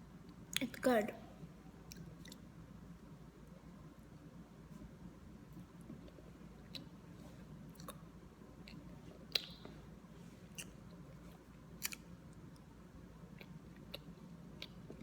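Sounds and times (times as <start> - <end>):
low room hum: 0.0 - 15.0
mouth clicks of chewing: 8.7 - 9.7.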